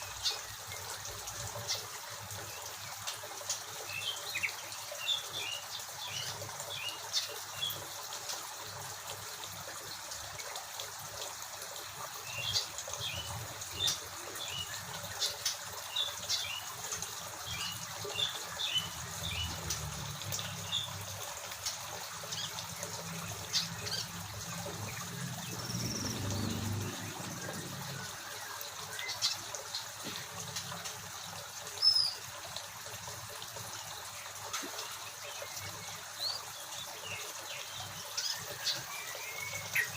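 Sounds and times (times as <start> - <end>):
small birds chirping: 12.2 - 32.3, 33.8 - 39.9.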